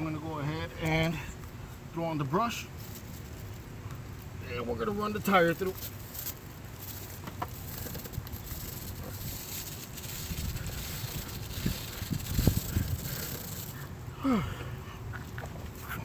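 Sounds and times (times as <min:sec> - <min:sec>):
brush scrubbing a chain: 0:04.8 - 0:14.0.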